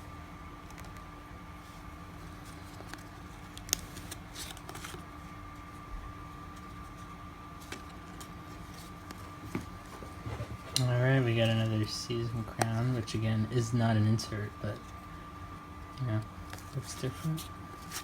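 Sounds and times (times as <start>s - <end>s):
faint steady hum: 0.0s - 18.0s
cards and wrapper rustling: 2.3s - 5.2s.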